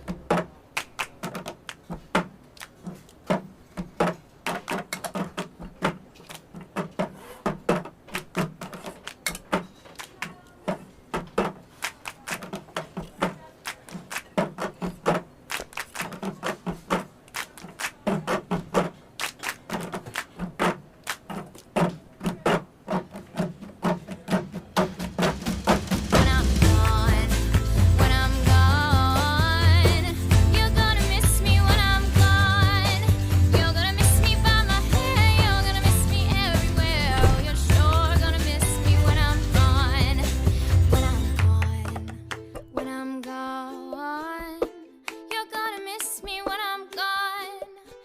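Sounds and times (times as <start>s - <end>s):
hand claps: 0.0s - 22.6s, 23.9s - 30.6s, 37.2s - 43.4s, 45.1s - 47.1s.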